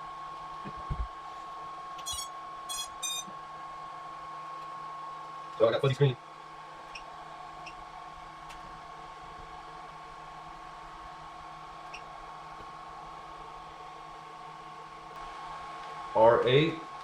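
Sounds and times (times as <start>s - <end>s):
low hiss and hum: 0.0s - 17.0s
high-pitched whine: 2.0s - 3.3s.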